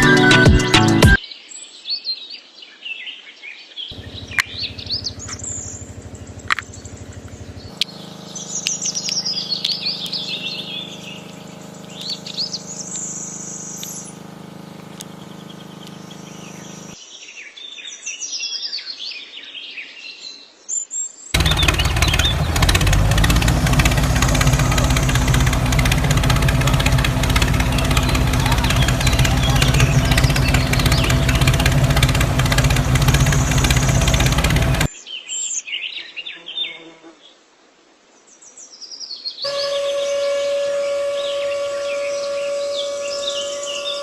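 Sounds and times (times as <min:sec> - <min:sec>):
small birds chirping: 0:03.9 - 0:17.0, 0:21.4 - 0:35.9, 0:39.0 - 0:44.0
steady low hum: 0:03.9 - 0:17.0, 0:21.4 - 0:34.9, 0:39.5 - 0:44.0.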